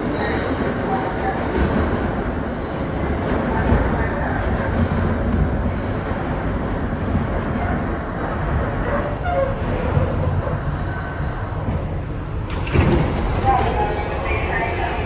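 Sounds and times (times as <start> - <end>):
subway car wheels rumbling: 0.0 - 15.0
faint high wheel squeal: 8.2 - 11.5.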